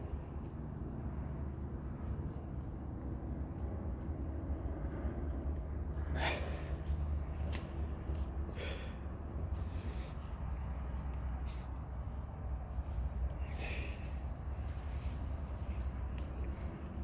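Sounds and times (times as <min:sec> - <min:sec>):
steady low hum: 0:00.0 - 0:17.0
man breathing heavily with effort: 0:05.8 - 0:16.0.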